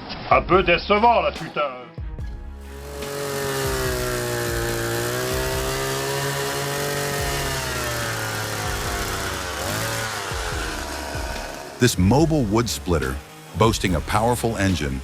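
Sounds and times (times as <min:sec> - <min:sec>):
chainsaw engine running: 0:02.6 - 0:15.0.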